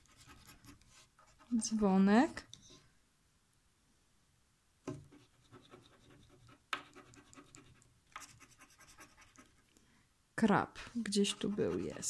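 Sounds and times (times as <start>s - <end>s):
scraping scratch-off card: 11.2s - 12.0s.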